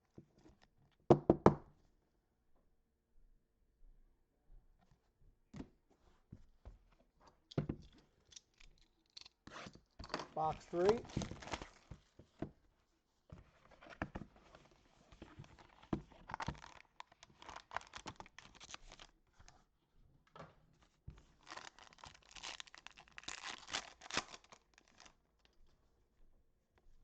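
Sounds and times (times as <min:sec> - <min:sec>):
wrapping torn and crinkled: 0:10.4 - 0:11.9, 0:15.5 - 0:19.1, 0:21.3 - 0:25.2.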